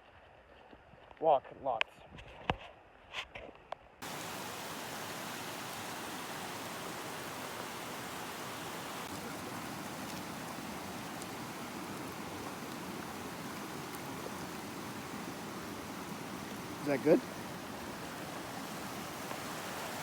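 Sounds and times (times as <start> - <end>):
rain hissing: 4.0 - 20.0.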